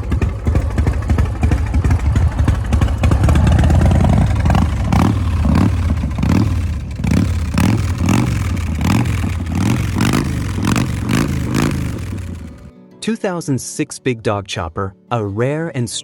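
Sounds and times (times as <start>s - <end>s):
motorcycle engine rumbling: 0.0s - 12.7s.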